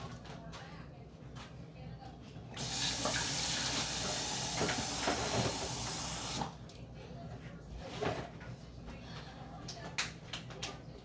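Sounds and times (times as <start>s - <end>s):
tap running into sink: 2.6s - 6.5s.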